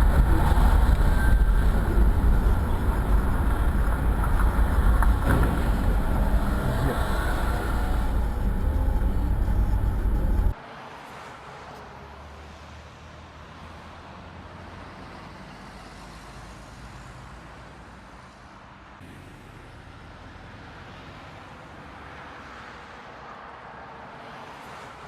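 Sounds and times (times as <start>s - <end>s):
low hum: 0.0s - 10.6s
vehicle engine and road noise: 0.0s - 25.0s.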